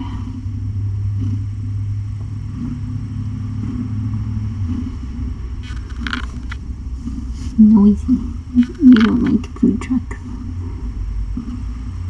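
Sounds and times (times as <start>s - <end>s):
truck engine rumble: 0.0s - 12.0s.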